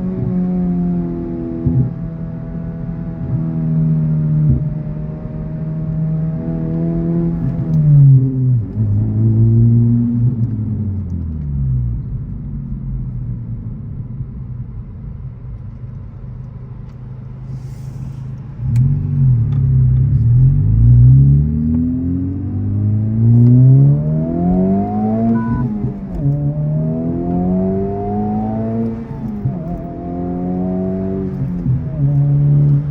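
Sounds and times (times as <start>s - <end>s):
car engine accelerating: 16.8s - 32.9s.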